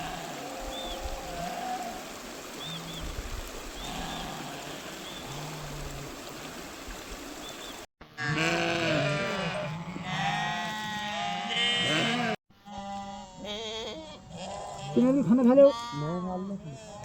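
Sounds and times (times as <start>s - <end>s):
animals bleating: 0.0s - 3.0s, 3.8s - 6.5s, 8.0s - 17.0s
water noise: 0.0s - 7.9s.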